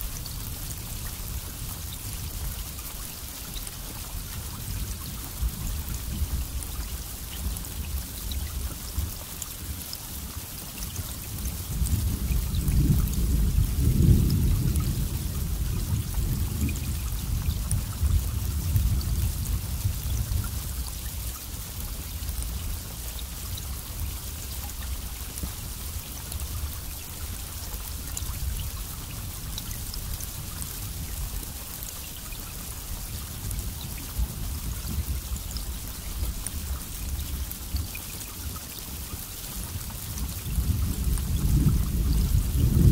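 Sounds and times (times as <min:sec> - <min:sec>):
steady rain: 0:00.0 - 0:42.9
low roll of thunder: 0:11.6 - 0:20.9, 0:40.1 - 0:42.9.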